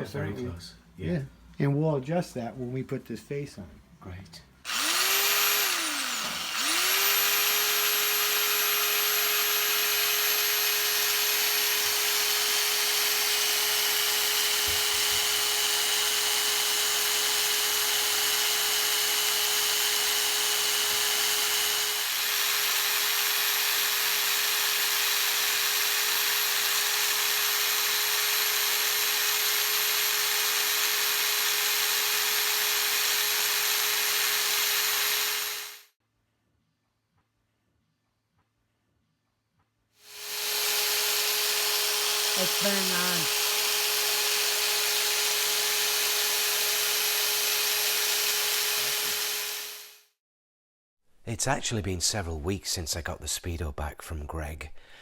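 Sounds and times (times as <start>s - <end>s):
small electric motor whining: 4.7s - 35.9s, 40.0s - 50.0s.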